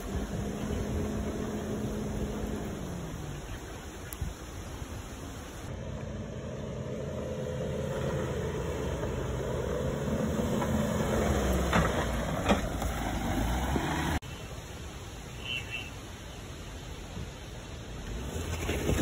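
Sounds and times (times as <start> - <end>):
car engine running at low revs: 0.0 - 14.2.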